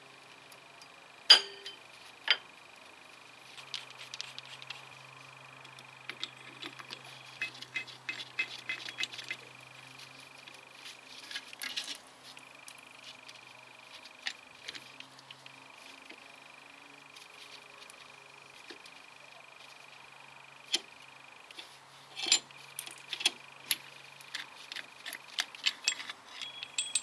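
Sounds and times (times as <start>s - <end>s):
metal tools clinking: 1.3s - 2.4s, 6.1s - 10.2s, 22.2s - 27.0s.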